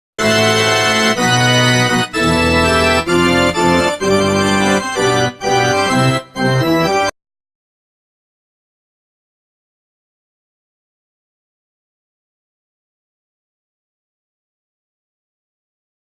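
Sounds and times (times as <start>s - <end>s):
electronic organ chords: 0.2s - 7.2s.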